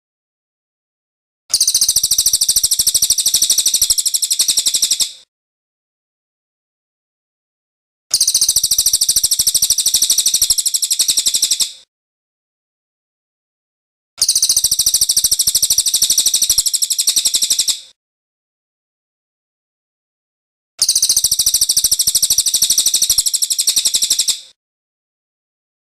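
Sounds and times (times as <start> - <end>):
bird trilling song: 1.5 - 5.2, 8.1 - 11.8, 14.2 - 17.9, 20.8 - 24.5.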